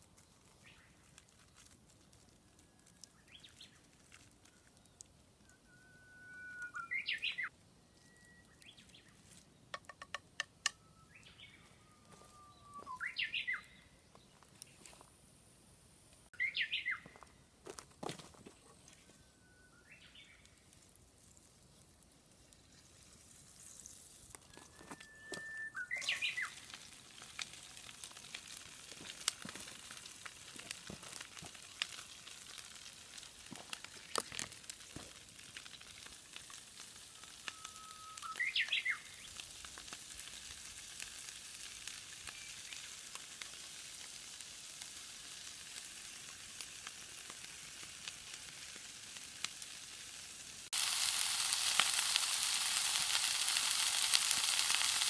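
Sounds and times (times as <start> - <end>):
rising whistle-like calls: 5.4 - 8.9, 10.6 - 13.8, 19.0 - 20.3, 24.5 - 26.6, 37.0 - 39.4
food sizzling in hot oil: 19.8 - 55.0.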